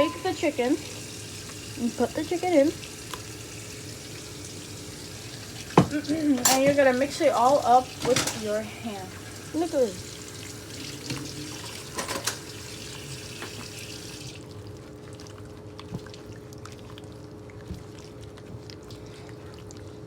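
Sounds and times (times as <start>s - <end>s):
tap water running: 0.0s - 14.7s
wet squishing of batter: 14.4s - 20.0s.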